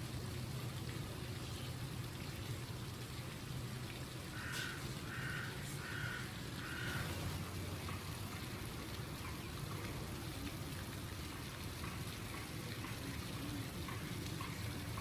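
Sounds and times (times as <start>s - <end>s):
low rumble and hiss: 0.0s - 15.0s
crow cawing: 4.4s - 7.1s.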